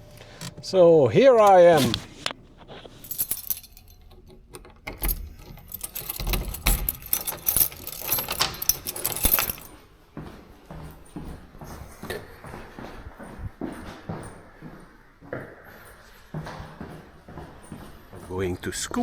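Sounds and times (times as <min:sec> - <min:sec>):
handling clicks and rattles: 0:00.0 - 0:09.7.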